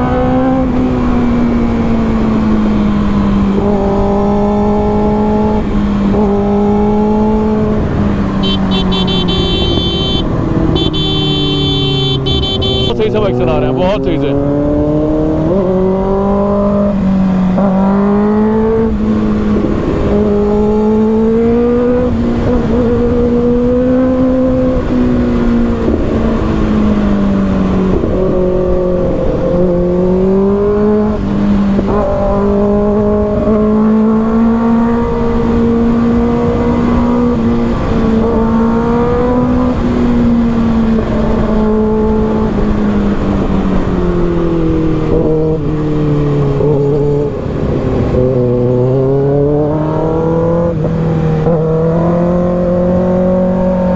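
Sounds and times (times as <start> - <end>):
wind and road noise: 0.0 - 53.9
motorcycle engine running: 5.5 - 13.1.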